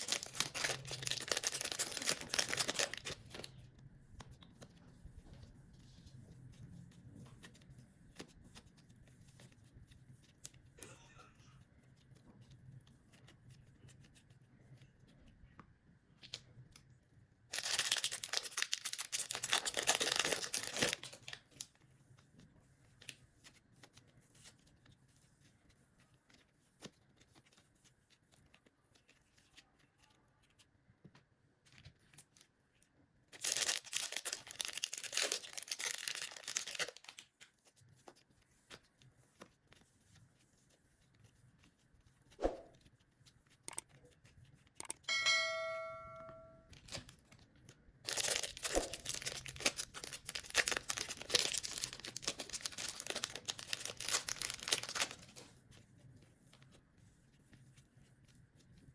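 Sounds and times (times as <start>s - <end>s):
crackly tearing noise: 0.0s - 3.6s, 17.5s - 21.4s, 33.4s - 37.6s, 46.7s - 55.5s.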